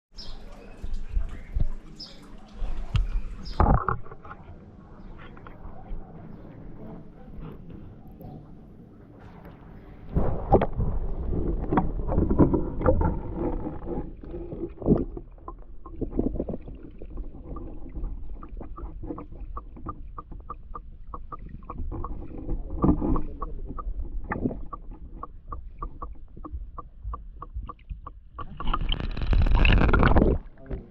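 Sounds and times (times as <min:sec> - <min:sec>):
muffled underwater rumbling and sloshing: 0:00.3 - 0:30.9
irregular knocks underwater: 0:02.7 - 0:04.4, 0:09.2 - 0:30.9.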